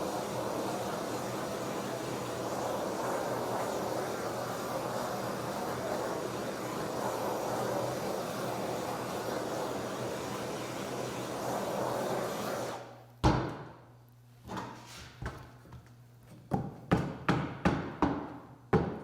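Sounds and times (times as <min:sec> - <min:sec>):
torch rushing noise: 0:00.0 - 0:12.9.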